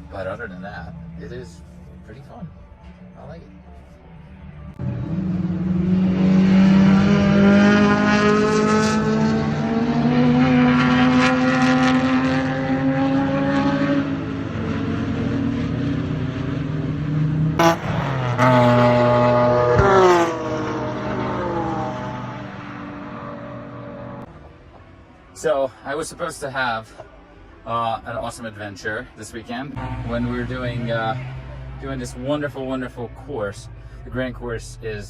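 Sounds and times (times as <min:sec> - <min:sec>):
race car engine running hard: 0:04.7 - 0:24.2.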